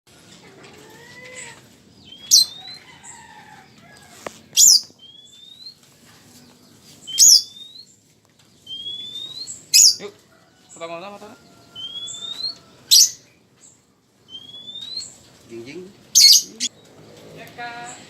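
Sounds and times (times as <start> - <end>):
lovebird shrill chirps: 2.1 - 2.8, 4.6 - 5.8, 7.1 - 7.9, 8.6 - 10.0, 11.8 - 13.2, 16.2 - 16.7.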